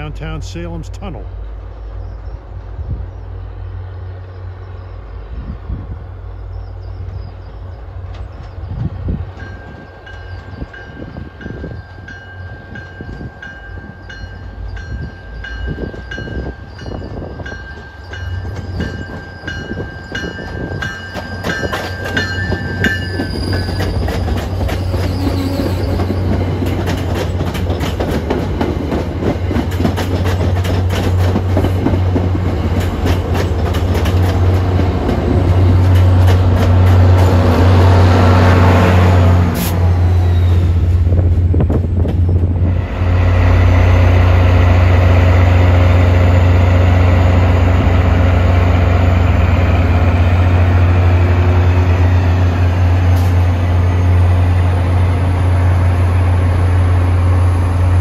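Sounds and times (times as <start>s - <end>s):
locomotive engine hum: 0.0s - 58.0s
train wheels on rails: 0.2s - 58.0s
train bell ringing: 9.3s - 25.2s.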